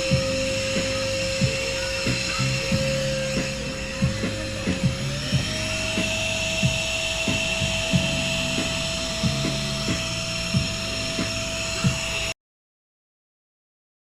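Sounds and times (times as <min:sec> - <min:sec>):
handheld vacuum running: 0:00.0 - 0:12.4.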